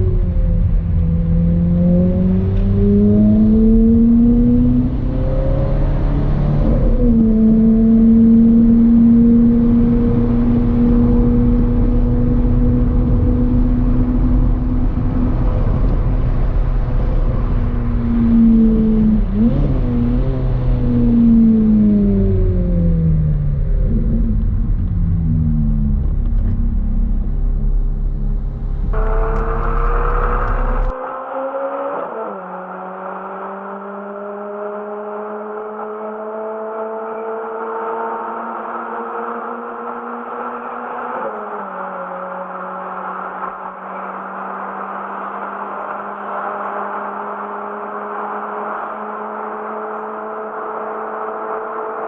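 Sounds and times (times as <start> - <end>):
car engine running: 7.0 - 31.2.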